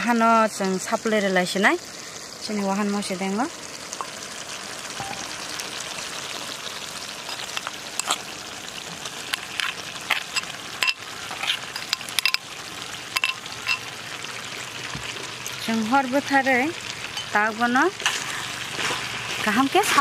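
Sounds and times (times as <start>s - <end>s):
meat sizzling in a wok: 0.0s - 20.0s
utensil clinking against pan: 10.3s - 12.5s, 13.2s - 13.9s.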